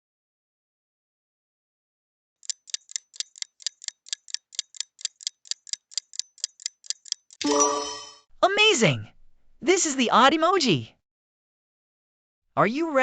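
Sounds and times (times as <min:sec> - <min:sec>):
sharp clock ticks: 0:02.4 - 0:07.4.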